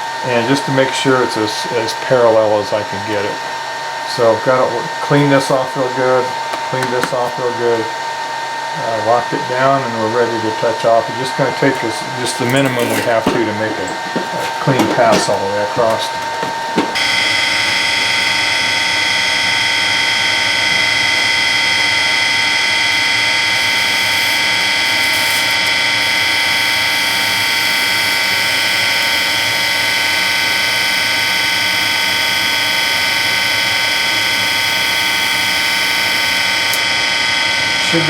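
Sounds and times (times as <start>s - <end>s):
surface grinder whining: 2.3s - 38.0s.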